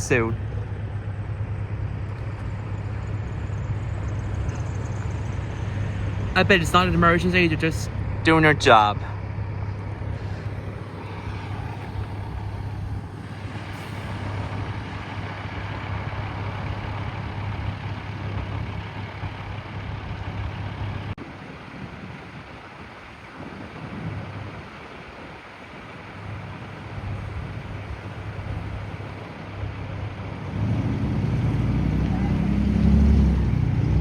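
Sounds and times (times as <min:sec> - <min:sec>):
heavy engine humming: 0:00.0 - 0:34.0
outdoor noise: 0:00.0 - 0:34.0.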